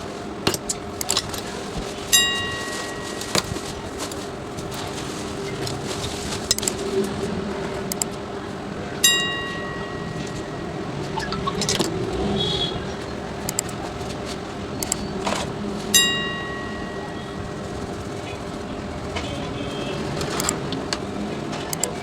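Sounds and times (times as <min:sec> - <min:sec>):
light clicks: 0:13.4 - 0:13.8, 0:14.8 - 0:15.0.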